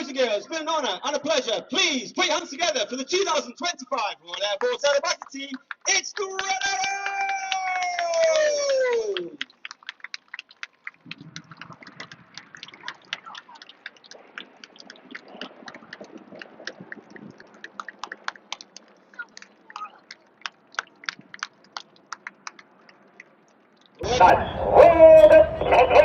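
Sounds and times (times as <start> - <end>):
scattered applause: 4.2 - 26.0
faint voices: 24.0 - 26.0.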